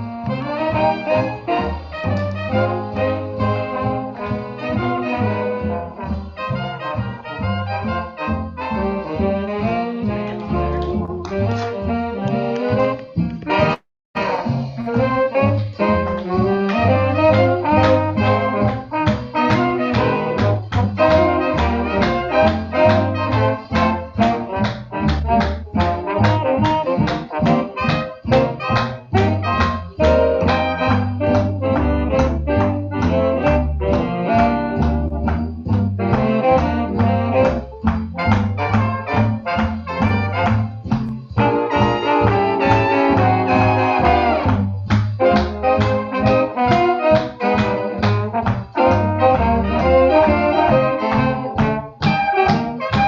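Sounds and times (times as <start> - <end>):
big band swing jazz: 0.0 - 53.0.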